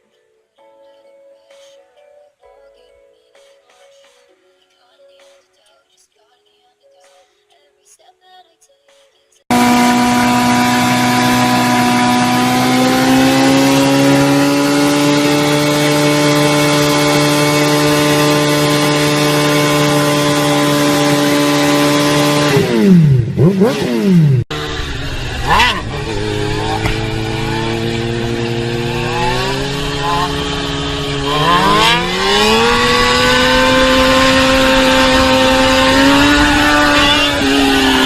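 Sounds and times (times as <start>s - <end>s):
motorcycle engine revving: 9.5s - 38.0s.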